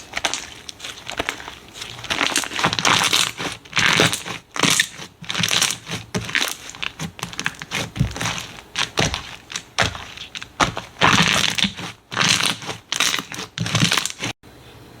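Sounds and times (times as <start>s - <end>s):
slime squished by hand: 0.0s - 14.4s.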